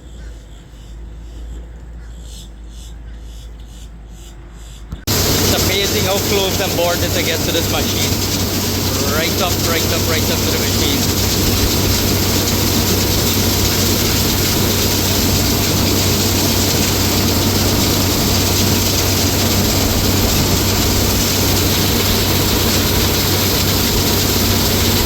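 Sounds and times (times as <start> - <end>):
deep constant hum: 0.0 - 25.0
large machine running: 5.1 - 25.0.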